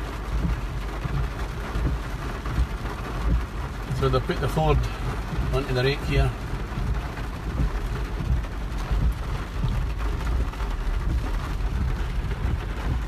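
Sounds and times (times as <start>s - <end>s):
rain on a car roof: 0.0s - 13.0s
low rumble: 6.3s - 13.0s.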